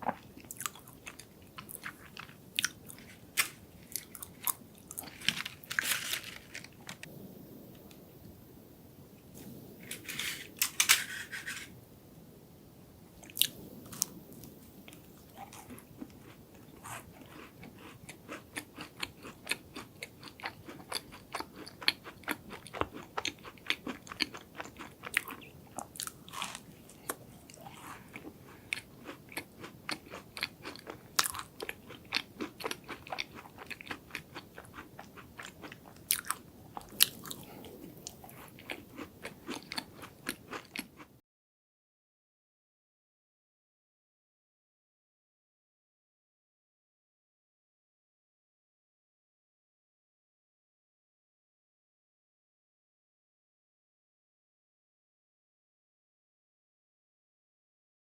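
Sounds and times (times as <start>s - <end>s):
crunchy chewing: 0.0s - 7.2s, 13.2s - 41.1s.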